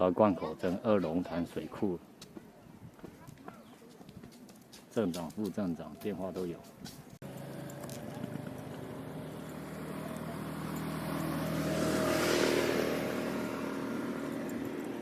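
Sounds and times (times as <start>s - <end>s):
vehicle driving past: 7.2s - 15.0s.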